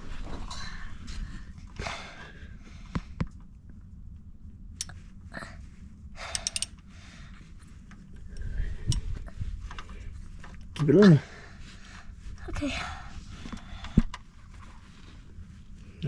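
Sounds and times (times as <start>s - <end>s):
wrench clicking and scraping: 6.3s - 6.8s.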